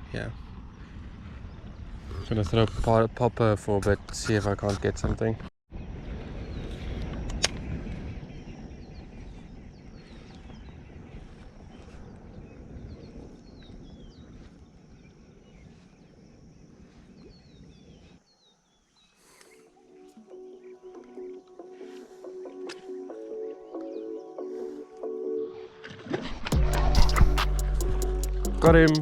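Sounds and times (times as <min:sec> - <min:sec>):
wind rumbling on microphone: 0:00.0 - 0:18.5
small birds chirping: 0:05.8 - 0:25.3
music: 0:19.8 - 0:29.0.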